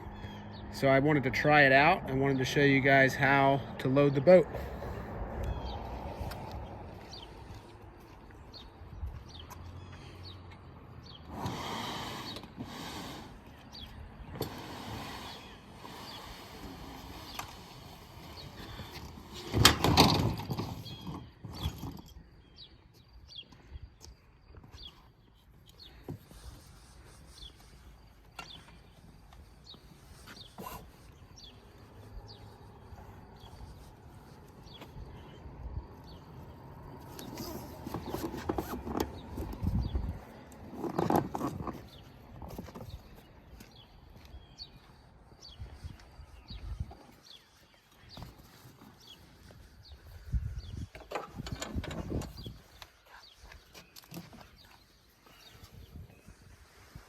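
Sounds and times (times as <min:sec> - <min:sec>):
raft knocking and rattling on cart: 0:19.4 - 0:22.1.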